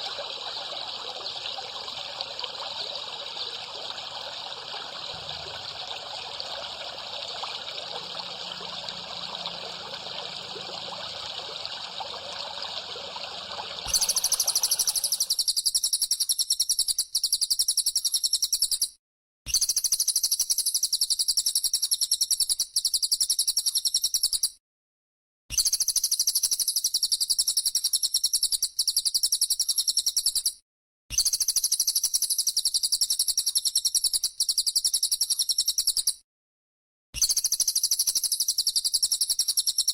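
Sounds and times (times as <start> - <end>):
water trickling: 0.0 - 15.3
cicada buzzing: 13.8 - 15.3.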